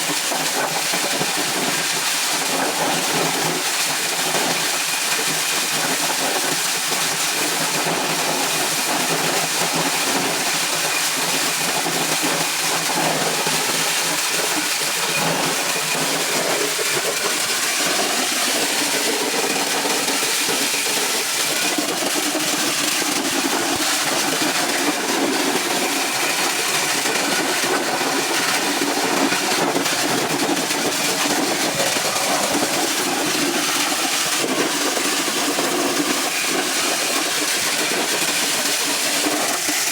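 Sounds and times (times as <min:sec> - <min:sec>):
corn sheller machine running: 0:00.0 - 0:39.9.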